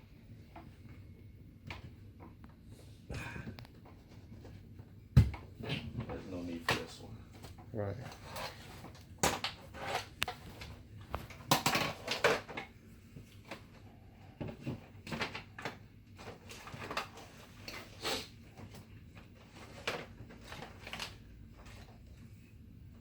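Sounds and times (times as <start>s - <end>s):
power cords and plugs handled: 5.6s - 13.8s, 18.6s - 22.0s.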